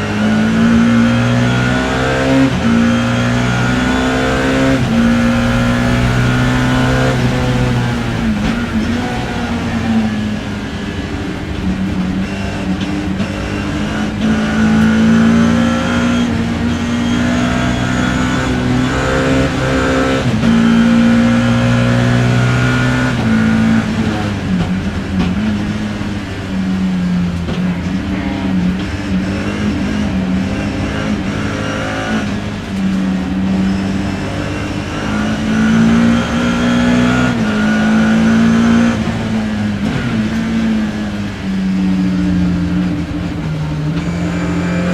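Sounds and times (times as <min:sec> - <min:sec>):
race car engine revving: 0:00.0 - 0:44.9
steady hiss: 0:02.6 - 0:11.8.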